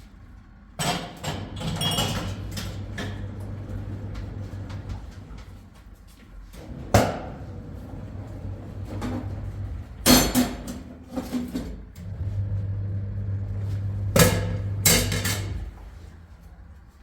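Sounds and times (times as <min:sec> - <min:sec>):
steady low hum: 0:12.0 - 0:17.0.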